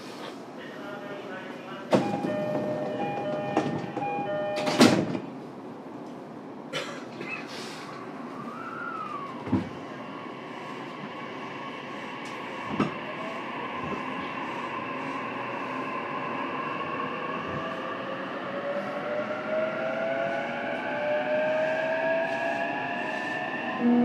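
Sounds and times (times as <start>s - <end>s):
sharp knocks from train car: 1.9s - 5.3s
train doors shutting thud: 1.9s - 5.4s, 9.1s - 9.8s, 12.6s - 13.0s.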